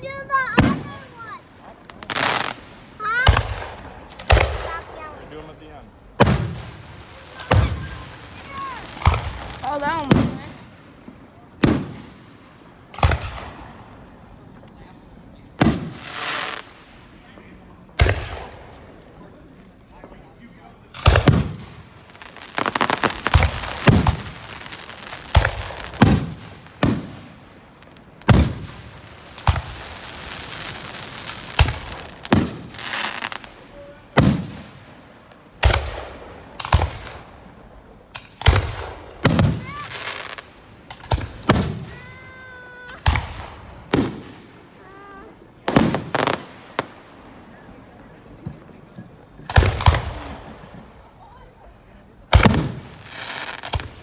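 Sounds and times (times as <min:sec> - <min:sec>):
fireworks booming: 0:00.0 - 0:54.0
fireworks crackling: 0:00.0 - 0:54.0.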